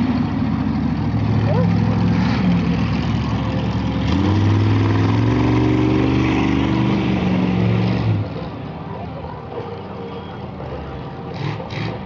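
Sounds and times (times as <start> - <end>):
monster truck engine revving: 1.0 - 8.5, 10.8 - 12.0.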